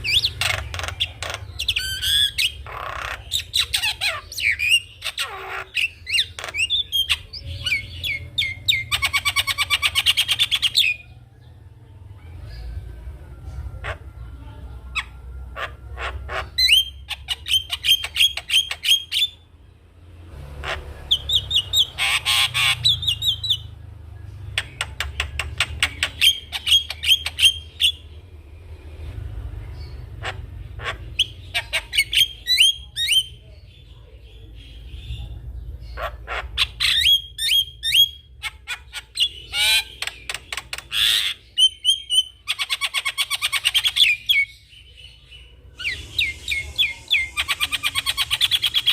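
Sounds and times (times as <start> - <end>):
myna clicking and chattering: 24.5 - 26.5, 39.9 - 41.0.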